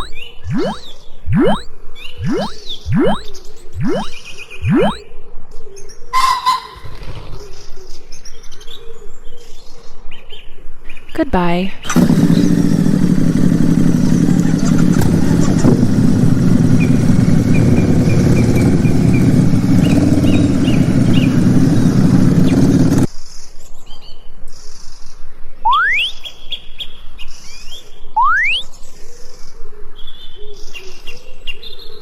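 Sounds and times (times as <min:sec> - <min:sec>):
birds chirping: 0:00.0 - 0:01.6, 0:02.2 - 0:05.0, 0:16.8 - 0:22.8
motor engine running: 0:11.9 - 0:23.1.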